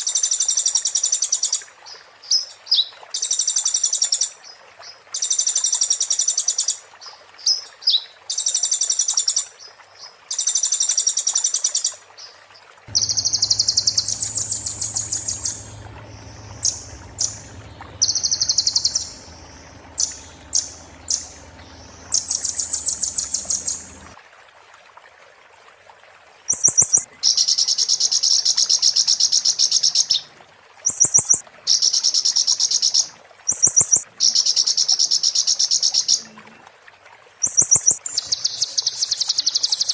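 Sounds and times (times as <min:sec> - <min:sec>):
bird singing buzzy trills: 0:12.9 - 0:24.2.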